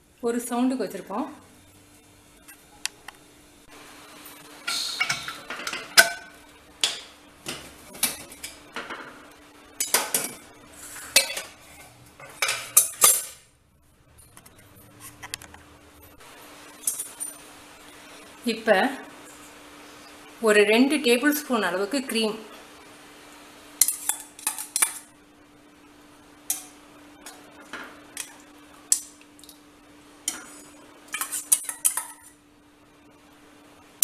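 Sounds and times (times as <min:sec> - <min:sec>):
faint steady hum: 0:00.0 - 0:34.0
metal utensils clinking on pot: 0:11.1 - 0:13.4, 0:23.8 - 0:25.1, 0:31.1 - 0:32.3.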